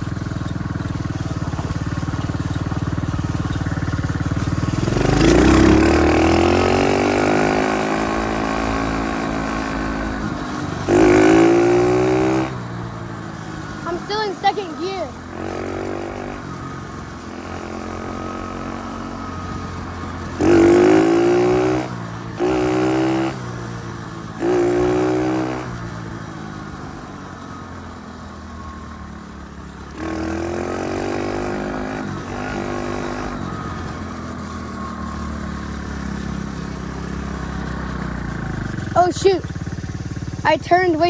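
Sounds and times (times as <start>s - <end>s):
dirt bike engine revving: 0.0s - 27.6s, 29.2s - 41.0s.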